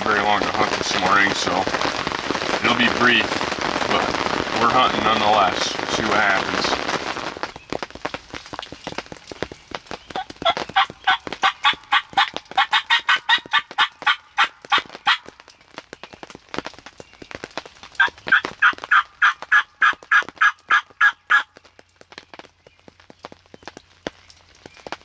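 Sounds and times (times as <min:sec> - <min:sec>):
turkey call hen yelps: 0:10.1 - 0:15.3, 0:18.0 - 0:21.5.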